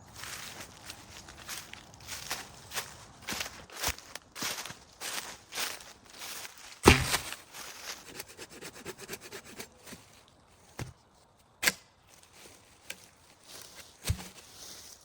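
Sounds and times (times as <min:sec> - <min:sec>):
sharp knocks: 0:06.8 - 0:07.3
loud thud: 0:06.8 - 0:07.4
rubbing and scraping: 0:06.9 - 0:10.9.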